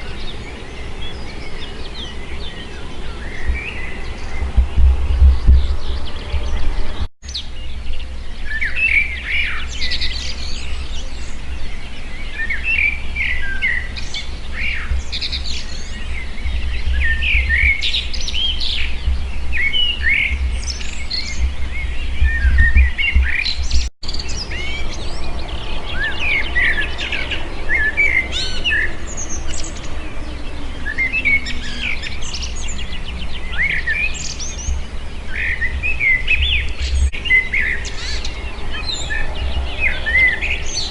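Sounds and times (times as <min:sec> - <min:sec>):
songbirds chirping and trilling: 0:00.0 - 0:40.9
steady low rumble: 0:02.2 - 0:07.1, 0:14.0 - 0:27.7.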